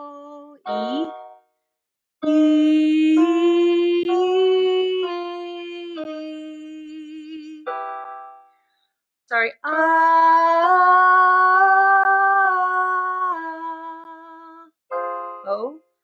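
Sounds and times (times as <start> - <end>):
woman singing vocal warm-up: 0.0 - 1.1, 2.2 - 7.8, 9.6 - 14.7.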